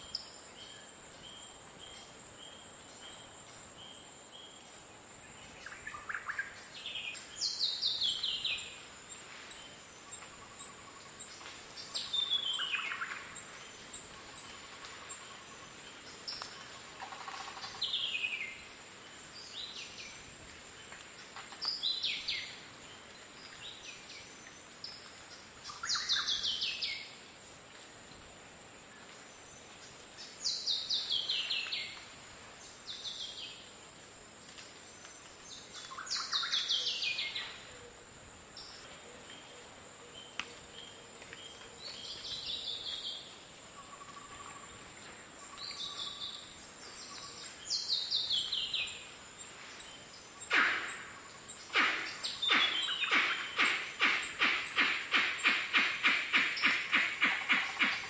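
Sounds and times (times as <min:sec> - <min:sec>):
high insect hum: 0:00.0 - 0:58.0
bird calls with falling notes: 0:50.3 - 0:58.0.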